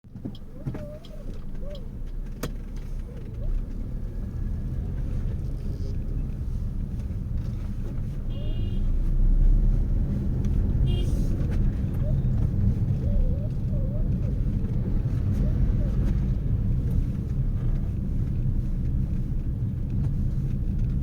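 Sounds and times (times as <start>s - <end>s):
low vehicle rumble: 0.0s - 21.0s.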